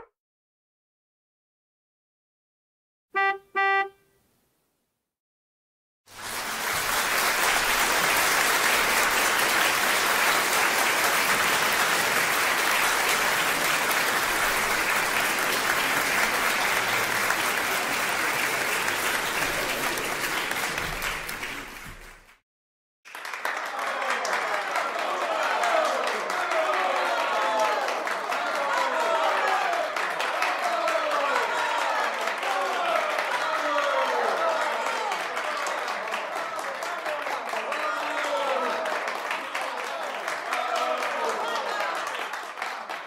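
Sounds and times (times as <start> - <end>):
short honking toots: 3.2 - 4.2
crowd applause: 6.1 - 22.4, 23.1 - 43.0.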